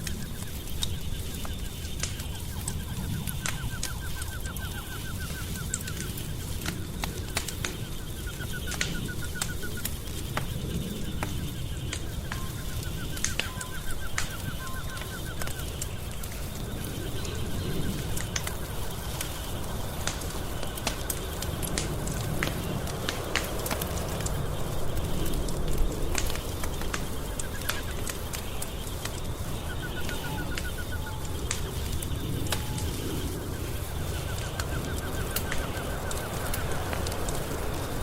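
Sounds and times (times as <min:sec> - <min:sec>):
high insect chirring: 0:00.0 - 0:38.0
rapid ticking calls: 0:00.0 - 0:38.0
wood fire crackling and popping: 0:00.0 - 0:38.0.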